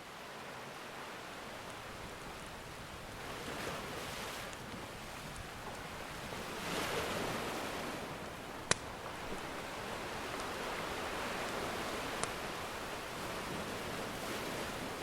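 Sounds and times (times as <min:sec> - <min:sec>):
ocean surf washing in: 0:00.0 - 0:15.0
wood fire popping: 0:04.5 - 0:06.5, 0:08.3 - 0:13.3.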